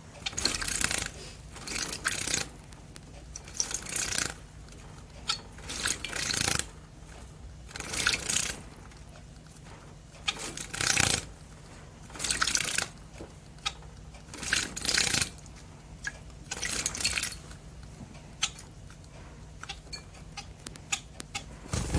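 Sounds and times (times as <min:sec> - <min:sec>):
birds splashing in water dish: 0:00.2 - 0:02.6, 0:03.5 - 0:04.4, 0:21.6 - 0:21.9.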